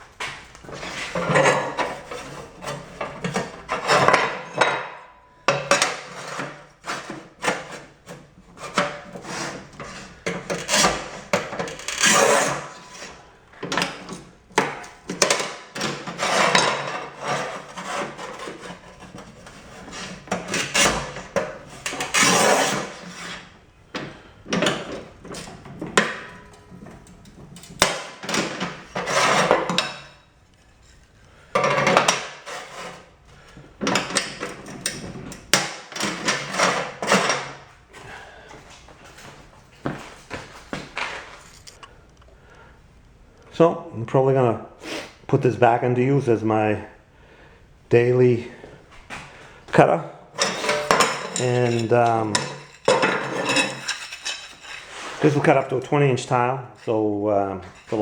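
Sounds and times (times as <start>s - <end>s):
clacks and knocks of tile cutter: 0.2s - 30.2s, 31.6s - 33.1s, 33.8s - 37.6s, 50.4s - 54.9s
scoring wheel rasping across tile: 8.6s - 13.2s, 15.8s - 23.5s, 50.4s - 55.9s.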